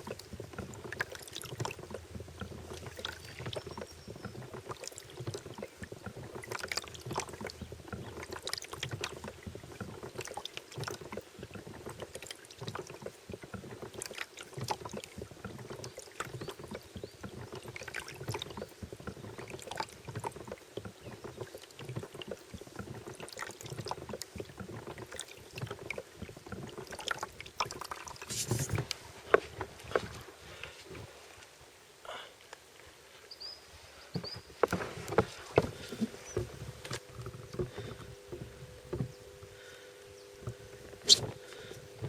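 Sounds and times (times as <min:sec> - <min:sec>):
water lapping against boat: 0:00.0 - 0:42.0
steady hum: 0:34.6 - 0:42.0.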